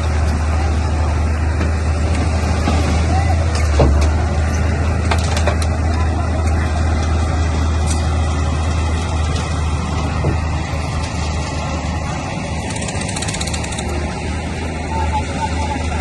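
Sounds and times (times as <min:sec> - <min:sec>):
bulldozer diesel engine drone: 0:00.0 - 0:16.0
machine clatter: 0:12.6 - 0:14.0.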